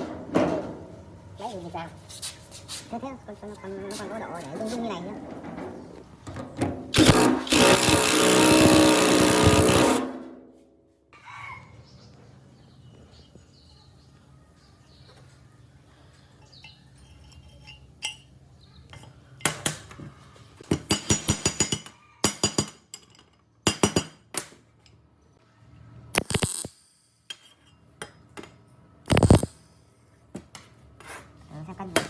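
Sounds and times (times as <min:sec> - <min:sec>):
metal clinking and tapping: 0:16.4 - 0:18.3, 0:20.7 - 0:25.0.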